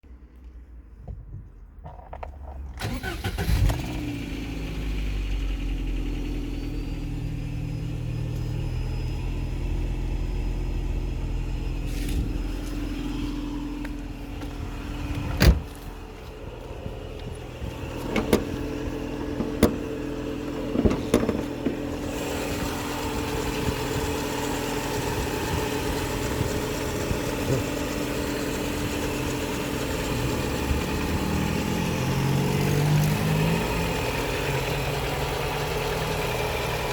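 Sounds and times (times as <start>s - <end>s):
engine starting and idling: 2.8s - 12.6s, 17.7s - 36.9s.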